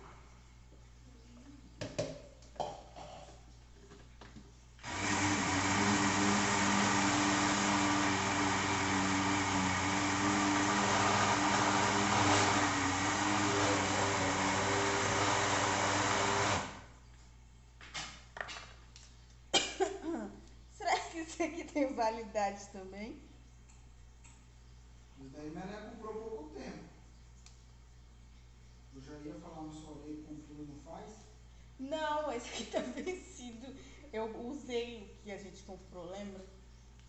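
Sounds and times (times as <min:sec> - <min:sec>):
electric blender running: 0:04.8 - 0:16.9.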